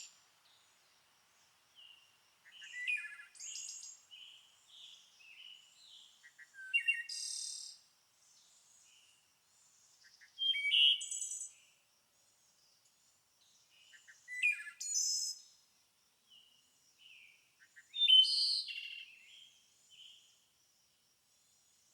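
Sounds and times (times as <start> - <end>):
songbirds chirping and trilling: 0.0 - 15.6.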